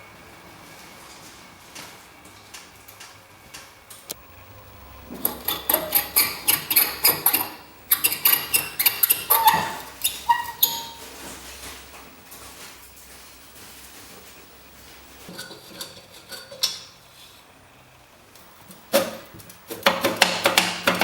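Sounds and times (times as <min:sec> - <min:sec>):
short squeaks: 0:05.2 - 0:11.4.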